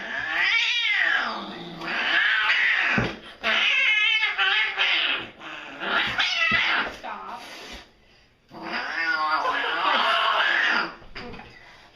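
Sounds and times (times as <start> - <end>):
cat yowling: 0.0 - 6.9.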